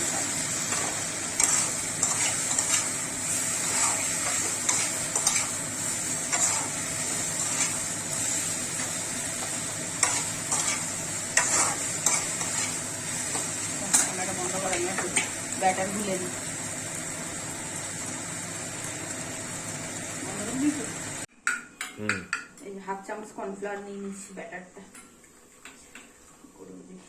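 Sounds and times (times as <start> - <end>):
food sizzling in sauce: 0.0 - 21.3.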